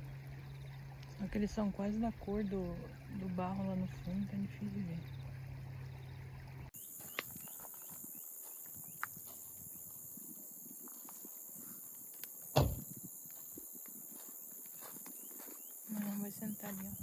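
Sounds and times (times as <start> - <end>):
steady low hum: 0.0 - 17.0
high-pitched insect chorus: 6.8 - 17.0
heavy thump: 12.5 - 12.9.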